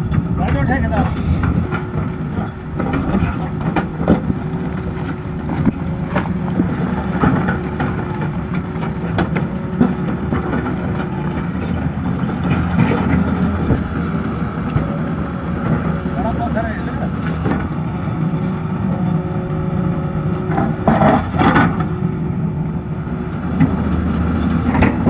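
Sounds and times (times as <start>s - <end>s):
machine knocks and clanks: 0.0s - 15.0s, 23.3s - 25.0s
excavator diesel engine running: 0.0s - 25.0s.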